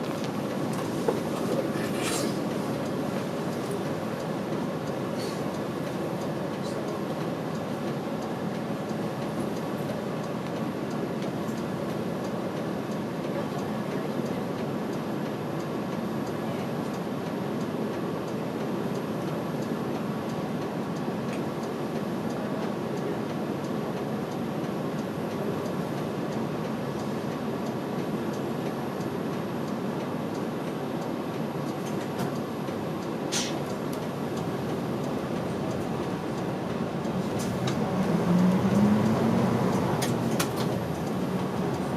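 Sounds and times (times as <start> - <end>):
bus engine and road rumble: 0.0 - 41.9.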